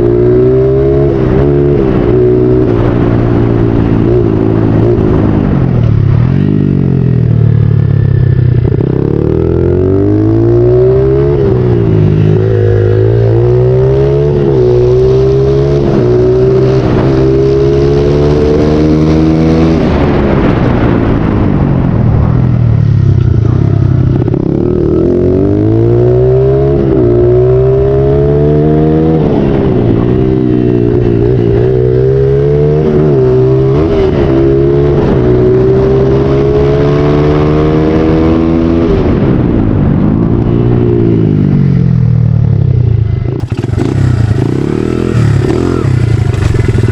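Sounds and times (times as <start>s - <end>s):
motorbike engine revving: 43.3s - 46.9s.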